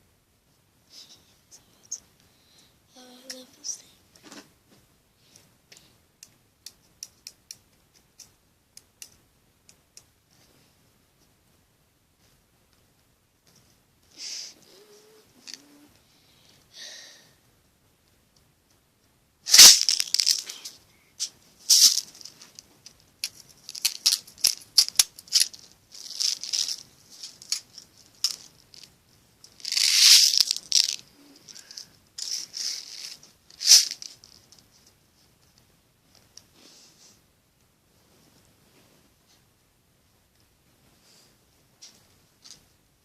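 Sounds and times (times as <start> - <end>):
toy in plastic packaging rattling: 19.5 - 20.8, 21.7 - 22.6, 23.2 - 28.9, 29.5 - 34.5.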